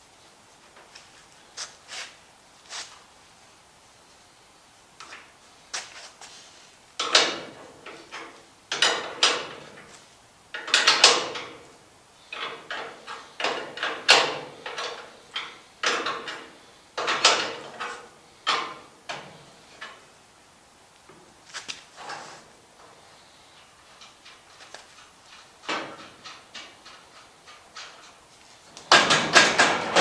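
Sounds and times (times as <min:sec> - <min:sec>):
hand tools clanking on metal: 0:28.8 - 0:30.0.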